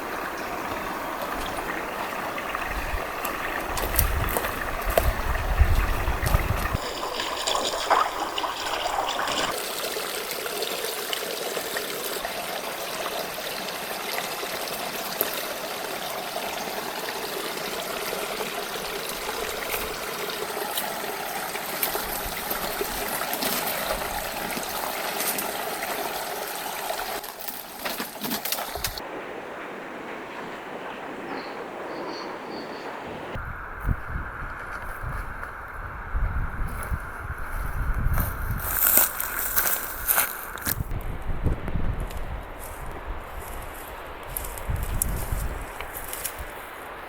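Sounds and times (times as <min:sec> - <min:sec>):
river water rushing: 0:00.0 - 0:33.6.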